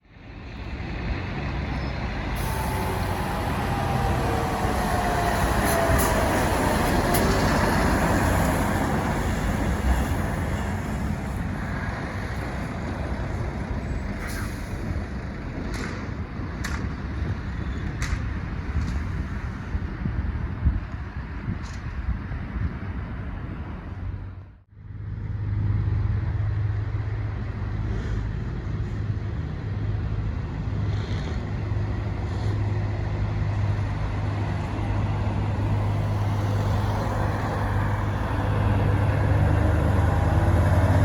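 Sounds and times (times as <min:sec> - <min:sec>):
heavy truck passing: 0:00.1 - 0:16.6, 0:23.2 - 0:41.0.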